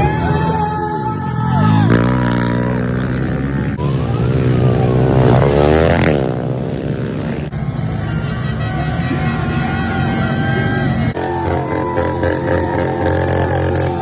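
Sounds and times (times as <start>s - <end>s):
motocross bike engines revving: 0.0s - 14.0s
motorbike passing close: 1.4s - 7.8s, 10.7s - 14.0s.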